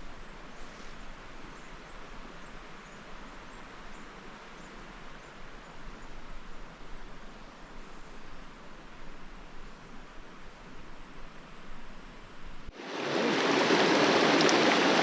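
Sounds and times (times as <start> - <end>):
river rushing: 12.7 - 15.0.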